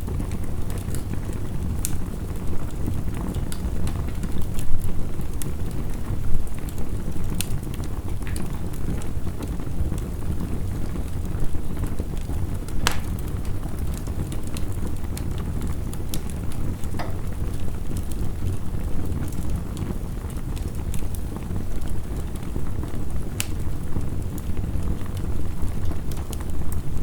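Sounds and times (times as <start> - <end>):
wood fire crackling and popping: 0.0 - 27.0.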